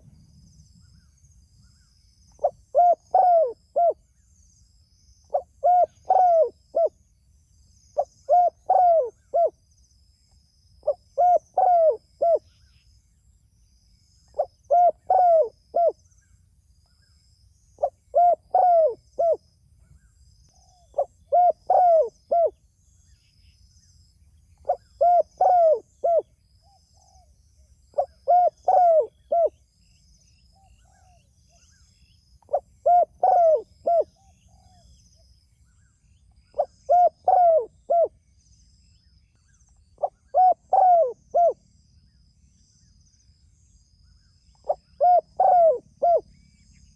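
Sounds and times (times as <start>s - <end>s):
dove cooing: 2.4s - 4.0s, 5.3s - 7.0s, 8.0s - 9.6s, 10.8s - 12.4s, 14.4s - 16.0s, 17.8s - 19.4s, 20.9s - 22.5s, 24.6s - 26.3s, 28.0s - 29.6s, 32.5s - 34.8s, 36.6s - 38.1s, 40.0s - 41.6s, 44.6s - 46.2s.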